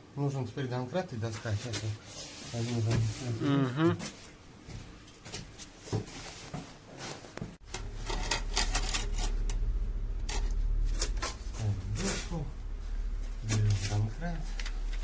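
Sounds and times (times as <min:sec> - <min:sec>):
steady low hum: 0:07.4 - 0:15.0.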